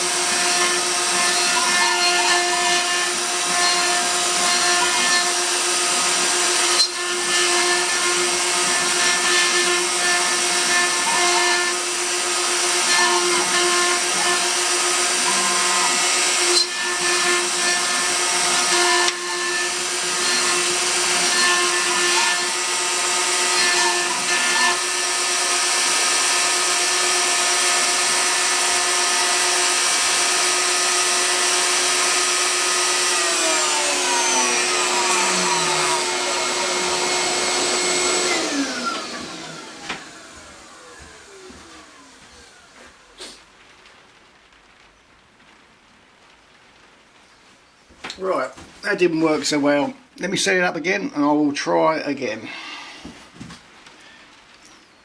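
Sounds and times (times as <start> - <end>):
router spindle whine: 0.0 - 43.2
stepper motor tones: 31.7 - 43.1
cutting hiss: 31.7 - 43.7.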